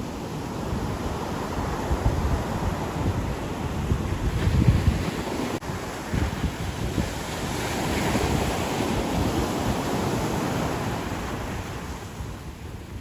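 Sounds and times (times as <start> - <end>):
ocean surf washing in: 0.0 - 13.0
wind buffeting microphone: 0.0 - 13.0.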